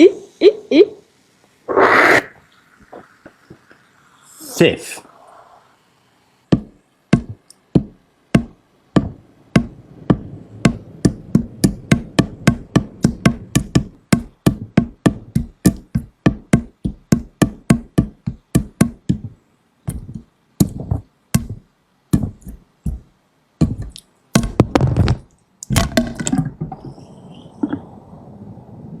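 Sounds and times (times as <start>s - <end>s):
sharp dry percussive knocks: 6.5s - 25.2s.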